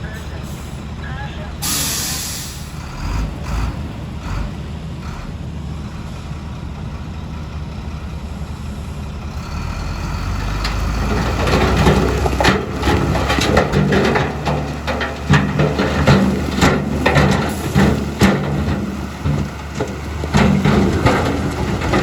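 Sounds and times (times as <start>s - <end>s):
diesel engine rumbling: 0.0s - 22.0s
dull knocks: 11.1s - 22.0s.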